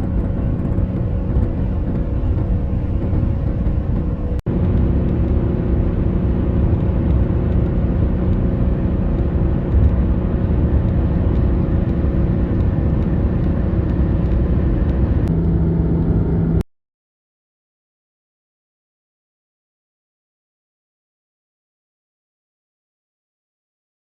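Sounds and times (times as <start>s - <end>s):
road and wind rumble: 0.0s - 16.6s
vehicle engine drone: 0.0s - 16.6s.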